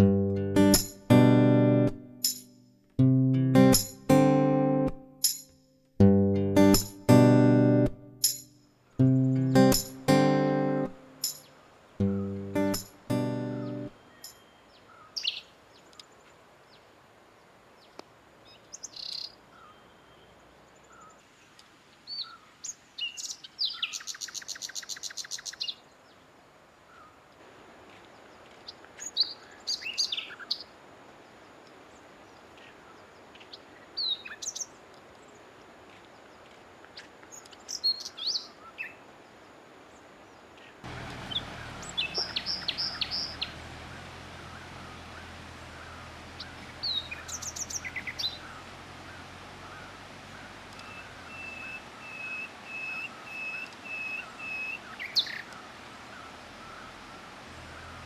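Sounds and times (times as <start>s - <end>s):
bird trill: 9.4s - 15.5s, 41.2s - 58.0s
birds chirping and whistling: 41.2s - 58.0s.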